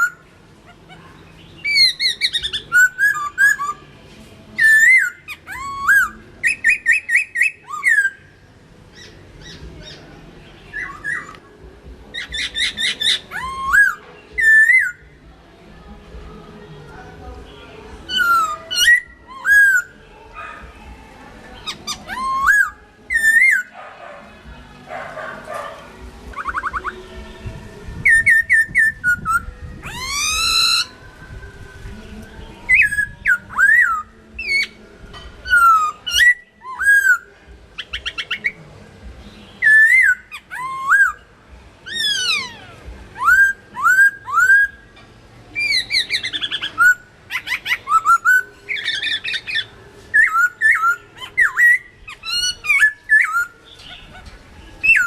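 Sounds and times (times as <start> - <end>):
bird singing whistled phrases: 1.6 - 3.8, 4.6 - 8.3, 10.7 - 11.4, 12.1 - 15.1, 18.1 - 20.0, 21.6 - 23.7, 26.3 - 27.0, 28.0 - 31.9, 32.7 - 34.8, 35.4 - 38.6, 39.6 - 41.3, 41.9 - 44.9, 45.6 - 55.0.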